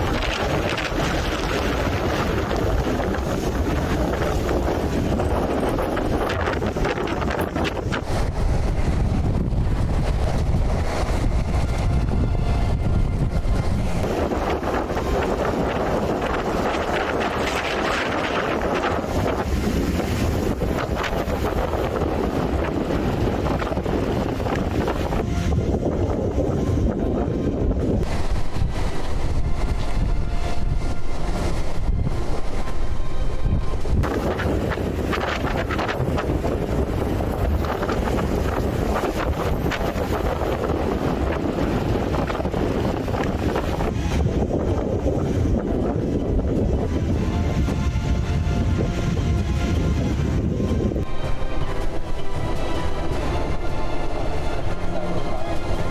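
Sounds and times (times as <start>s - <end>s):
strong wind buffeting microphone: 0.0s - 55.9s.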